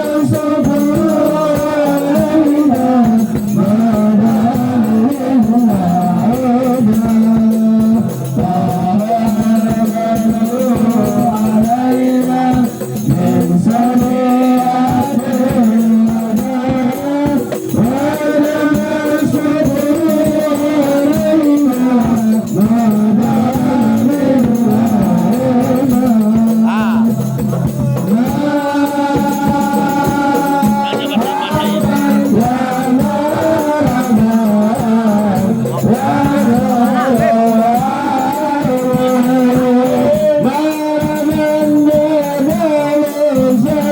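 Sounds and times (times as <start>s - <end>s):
group singing devotional song: 0.0s - 43.9s
hand percussion with jingles: 0.0s - 43.9s.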